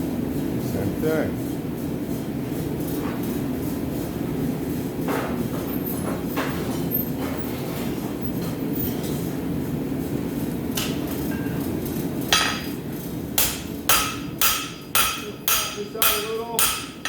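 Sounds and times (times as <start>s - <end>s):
hammer striking steel on anvil: 12.3s - 12.8s, 13.4s - 17.0s.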